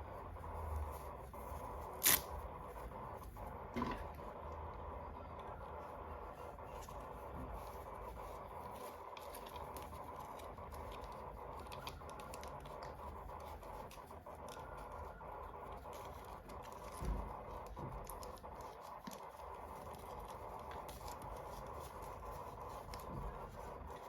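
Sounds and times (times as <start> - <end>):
background hum: 0.0 - 24.0
packaging scratches and taps: 6.5 - 24.0.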